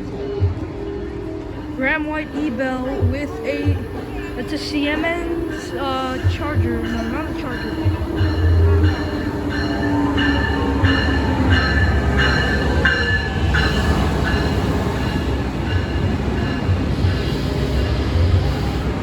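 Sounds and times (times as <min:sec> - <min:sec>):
low rumble of moving train: 0:00.0 - 0:19.0
train bell ringing: 0:01.6 - 0:19.0.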